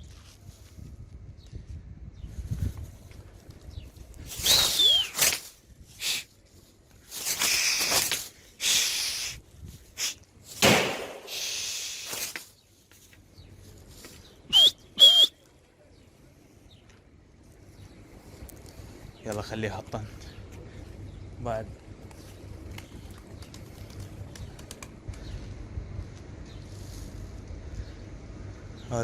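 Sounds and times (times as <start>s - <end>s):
short high whistles: 4.3s - 5.4s, 7.3s - 9.4s, 11.3s - 12.4s, 14.5s - 15.4s
pigeon wings flapping: 4.3s - 5.6s, 7.2s - 8.4s, 10.6s - 12.5s, 22.0s - 25.3s.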